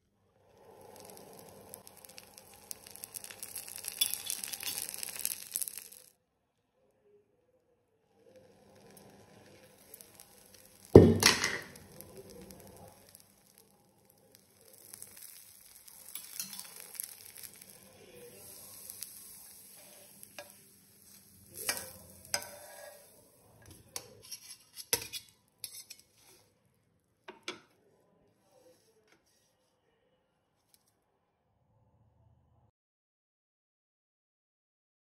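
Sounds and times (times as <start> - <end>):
batter sizzling on a griddle: 0.3 - 6.1, 8.1 - 26.5.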